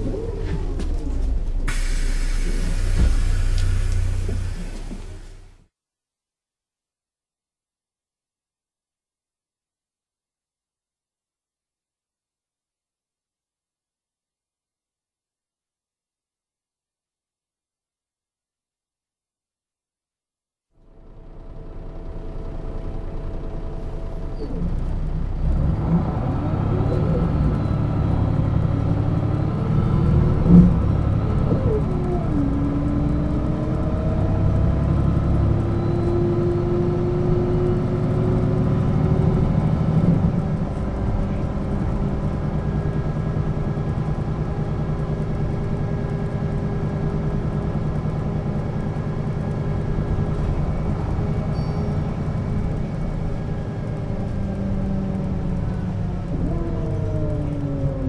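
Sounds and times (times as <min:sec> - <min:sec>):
bus engine accelerating: 0:00.0 - 0:05.6, 0:20.8 - 0:58.0.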